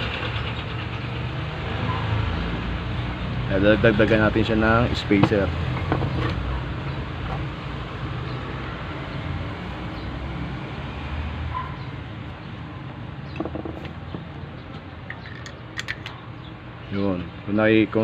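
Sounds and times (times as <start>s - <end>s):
vehicle engine rumble: 11.7s - 16.8s
small parts clicking: 15.1s - 16.2s.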